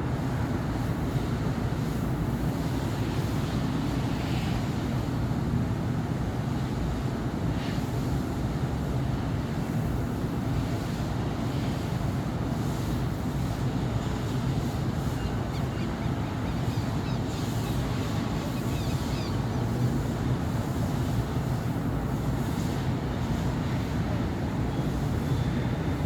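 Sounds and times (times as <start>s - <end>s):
city traffic rumble: 10.5s - 26.0s.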